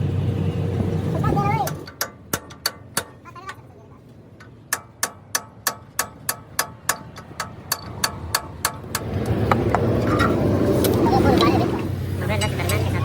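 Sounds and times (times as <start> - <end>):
hammer striking steel: 1.7 - 3.6, 4.4 - 9.2.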